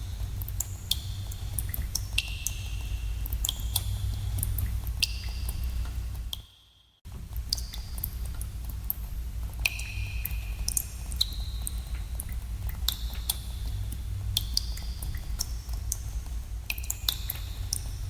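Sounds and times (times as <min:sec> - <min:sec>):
water drops plinking in a cave: 0:00.0 - 0:06.7, 0:07.3 - 0:18.0
steady low rumble: 0:07.1 - 0:18.0.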